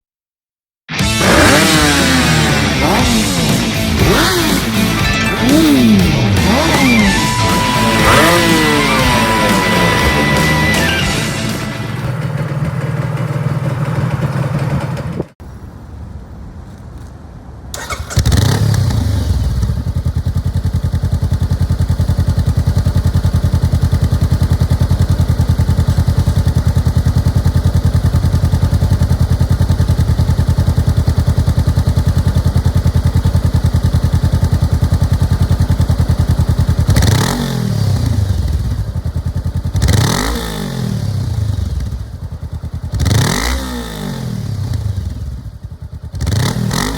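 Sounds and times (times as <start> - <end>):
motorcycle engine idling and revving: 0.9 - 15.8, 16.6 - 46.9.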